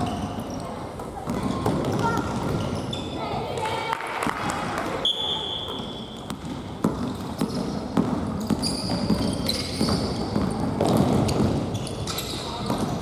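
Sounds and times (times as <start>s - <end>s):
shoes squeaking on court: 0.0s - 3.7s, 4.9s - 13.0s
ball kicked and bouncing: 5.7s - 13.0s.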